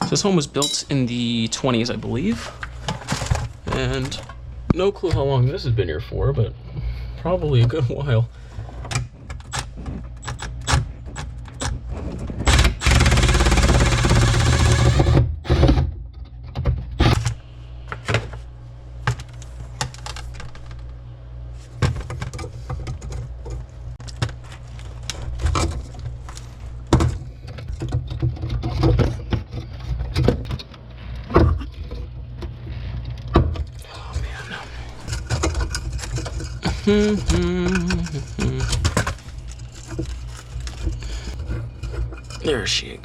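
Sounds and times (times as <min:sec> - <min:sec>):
steady low hum: 0:00.0 - 0:43.0
hand tools clicking and rattling: 0:35.1 - 0:41.0.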